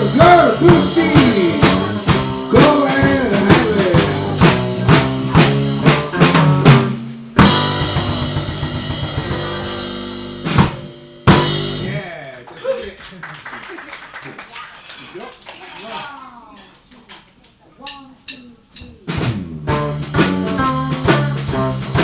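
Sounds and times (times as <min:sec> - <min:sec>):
live band playing: 0:00.0 - 0:12.1, 0:18.0 - 0:22.0.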